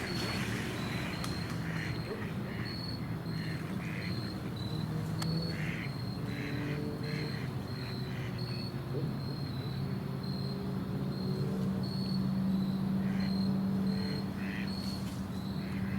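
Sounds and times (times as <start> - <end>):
ducks quacking: 0.1 - 2.8, 3.4 - 4.2, 5.5 - 7.5.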